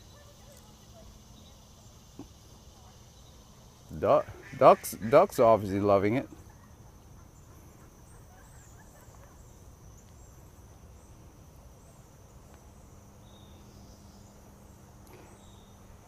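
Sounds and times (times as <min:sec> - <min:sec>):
insects trilling: 0:00.0 - 0:16.0
faint bird chirps: 0:06.1 - 0:16.0.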